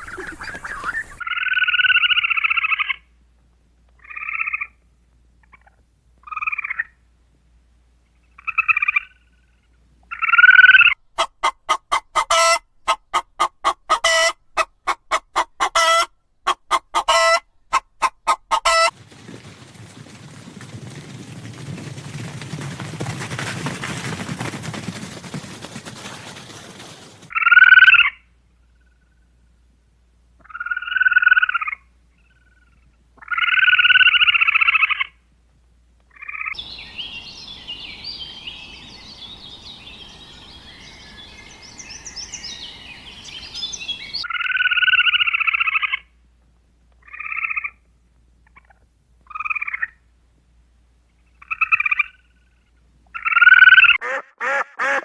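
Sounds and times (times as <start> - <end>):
chorus of higher animal calls: 0.0 - 1.2
loud animal calls: 0.0 - 1.2, 11.2 - 18.9.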